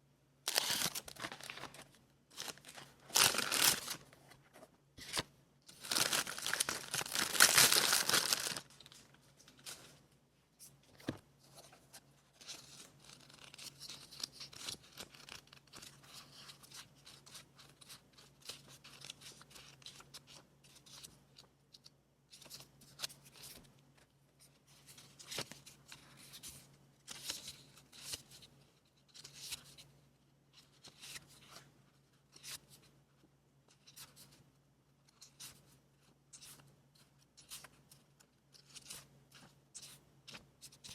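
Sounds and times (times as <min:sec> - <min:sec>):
paper tearing: 0:00.5 - 0:01.8.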